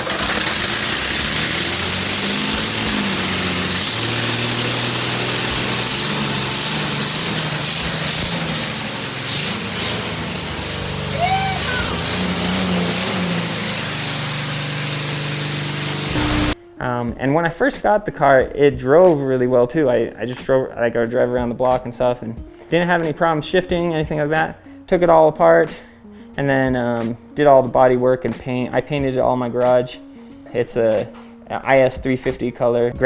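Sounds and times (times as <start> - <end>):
car engine revving: 0.0 - 16.6.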